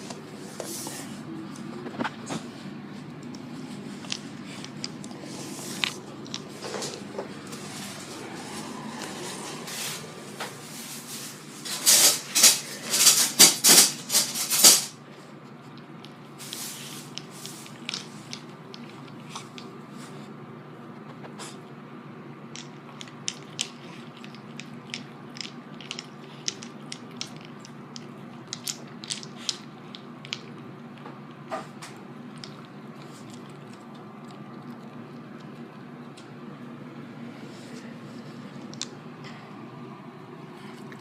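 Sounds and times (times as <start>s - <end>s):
dogs crunching ice cubes: 22.6s - 30.7s.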